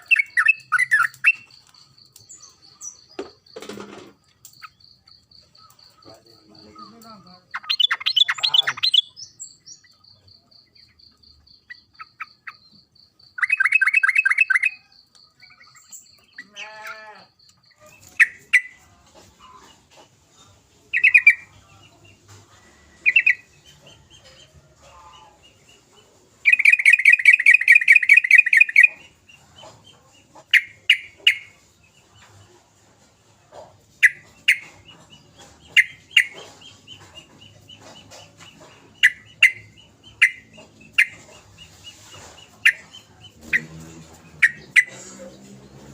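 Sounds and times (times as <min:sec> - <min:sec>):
bird chattering trill: 0:00.0 - 0:03.6, 0:04.5 - 0:16.6, 0:17.6 - 0:18.8, 0:20.9 - 0:21.5, 0:23.0 - 0:24.3, 0:26.4 - 0:31.6, 0:33.9 - 0:45.4.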